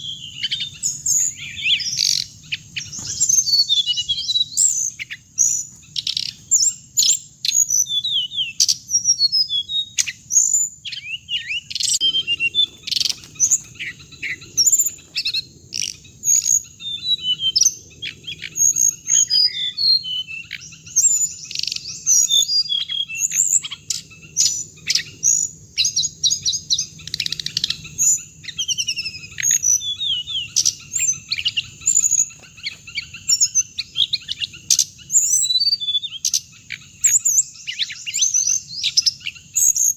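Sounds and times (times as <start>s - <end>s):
songbird chirping and twittering: 0.0s - 39.9s.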